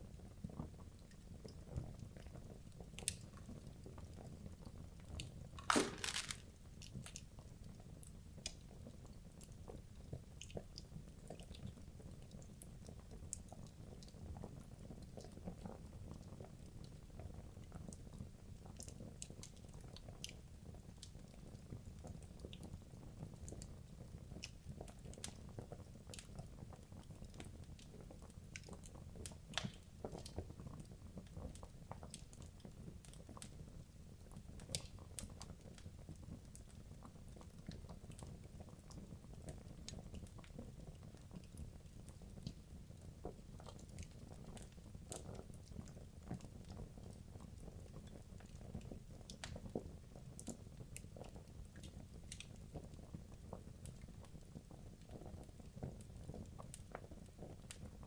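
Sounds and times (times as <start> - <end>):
loud wood crack: 5.6 - 6.4
burning logs popping and snapping: 5.6 - 6.5.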